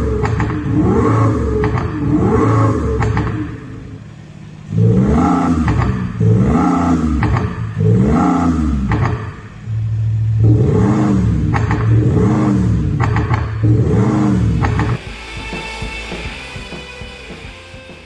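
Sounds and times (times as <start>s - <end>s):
car engine revving: 0.0s - 18.0s
electronic exhaust note: 13.6s - 18.0s.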